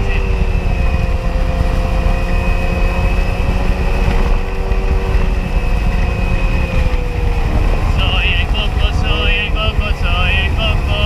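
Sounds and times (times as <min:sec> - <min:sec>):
jet ski engine running: 0:00.0 - 0:11.0
rush of wind and water: 0:06.6 - 0:11.0.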